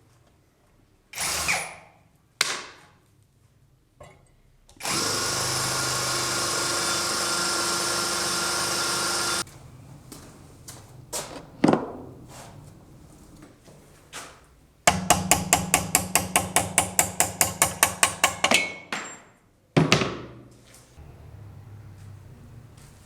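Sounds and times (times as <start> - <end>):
hammer striking metal: 14.9 - 19.2.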